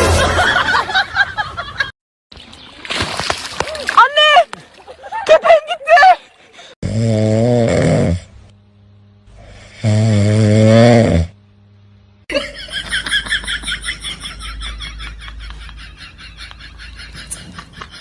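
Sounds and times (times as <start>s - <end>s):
pet snoring: 6.8s - 8.4s, 9.4s - 11.4s.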